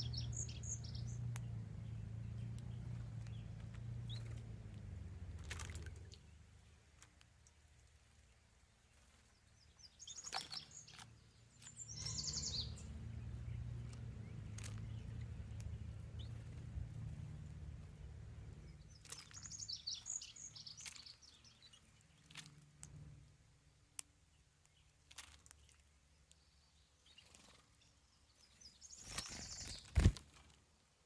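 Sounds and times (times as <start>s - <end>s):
bird chirping: 0.0s - 4.5s, 8.2s - 22.5s, 25.5s - 30.2s
faint low rumble: 0.0s - 9.7s, 10.9s - 24.6s.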